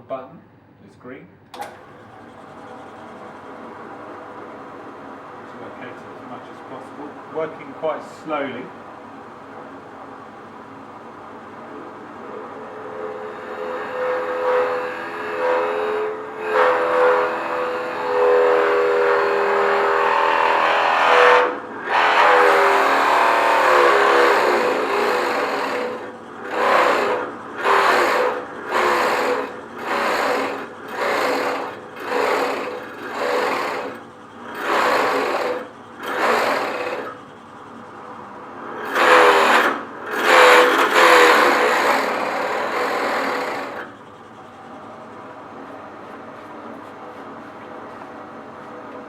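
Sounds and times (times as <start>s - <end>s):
drill motor running: 1.6s - 49.0s
drill boring into workpiece: 12.6s - 37.3s, 38.7s - 44.0s.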